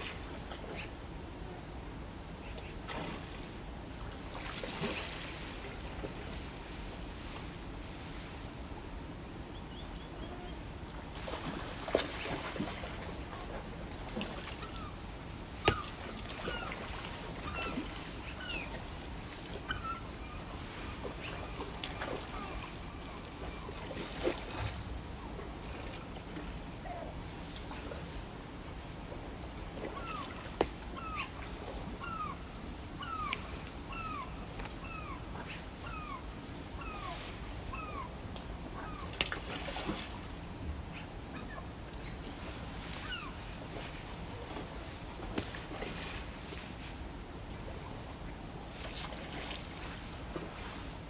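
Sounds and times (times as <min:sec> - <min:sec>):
birds chirping: 0:09.5 - 0:10.7
bird mewing calls: 0:15.6 - 0:18.9, 0:19.5 - 0:23.9, 0:29.8 - 0:39.1, 0:43.0 - 0:43.4.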